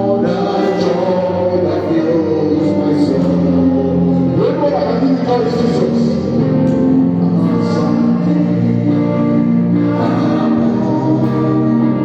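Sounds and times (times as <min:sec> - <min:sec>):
choir singing gospel music: 0:00.0 - 0:12.0
instrumental accompaniment: 0:00.0 - 0:12.0.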